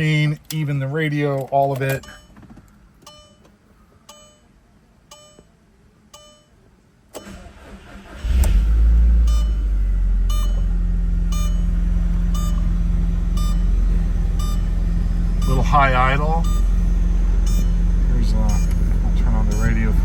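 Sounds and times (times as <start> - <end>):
car engine idling: 7.2 - 20.0
electronic chime beeping: 9.2 - 9.7, 10.3 - 10.7, 11.3 - 11.7, 12.3 - 12.6, 13.4 - 13.7, 14.4 - 14.7, 17.4 - 17.8, 19.4 - 19.9.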